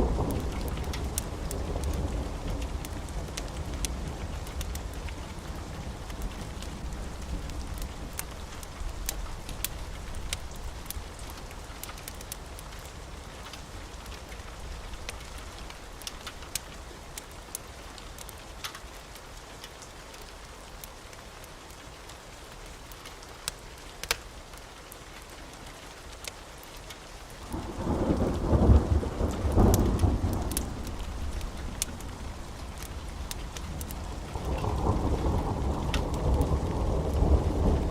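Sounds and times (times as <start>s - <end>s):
thunder rumbling: 0.0s - 9.1s, 27.5s - 37.9s
steady rain: 0.0s - 37.9s
wood fire crackling: 0.0s - 37.9s.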